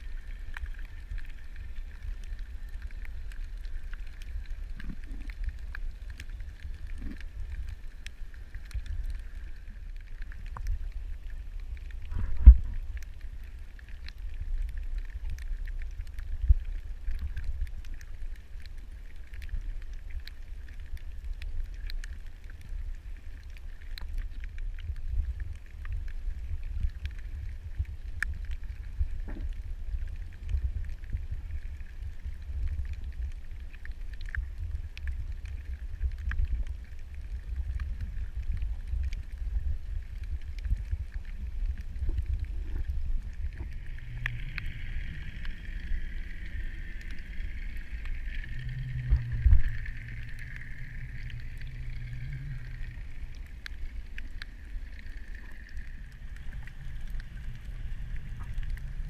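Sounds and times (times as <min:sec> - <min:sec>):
faint clicks: 0:00.0 - 0:59.0
underwater low rumble: 0:00.0 - 0:59.0.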